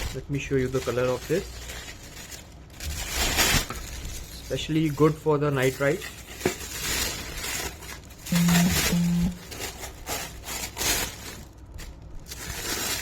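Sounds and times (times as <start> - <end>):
short low tones: 8.3 - 9.4.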